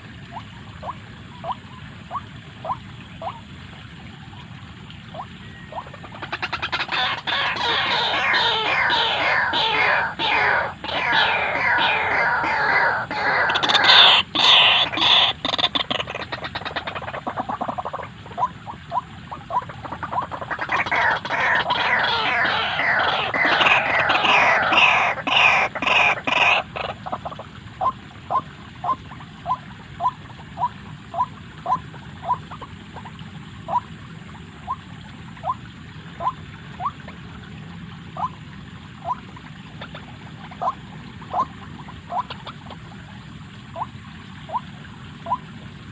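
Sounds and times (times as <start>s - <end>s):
waterhen chattering calls: 0.0s - 45.9s.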